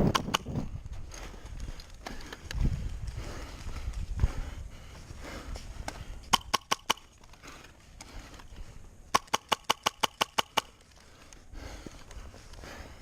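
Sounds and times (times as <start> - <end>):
airsoft gun shots: 6.3 - 7.1, 9.1 - 10.7.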